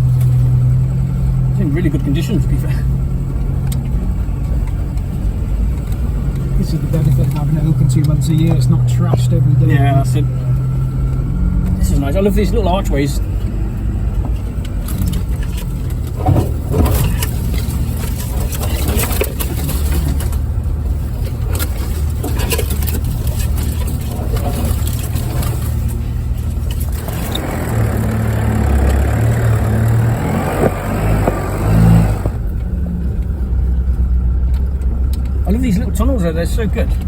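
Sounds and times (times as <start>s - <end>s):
vehicle engine running: 0.0s - 37.0s
knocks and rattles from bumps: 14.2s - 32.4s.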